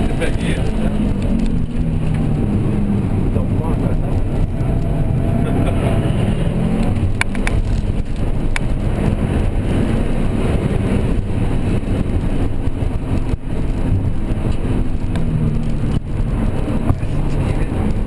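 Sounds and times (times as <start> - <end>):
car engine revving: 0.0 - 18.0
road noise inside car: 0.0 - 18.0.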